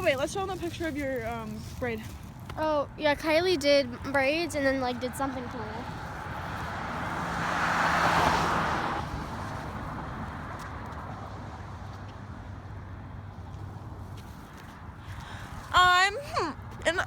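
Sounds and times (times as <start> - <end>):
low steady traffic noise: 0.0 - 17.0
car passing by: 4.5 - 15.7.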